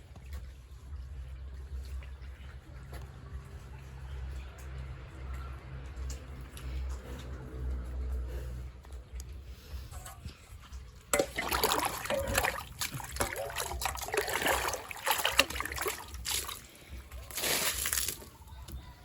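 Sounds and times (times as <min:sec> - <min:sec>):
water splashing and sloshing: 0:00.0 - 0:19.0.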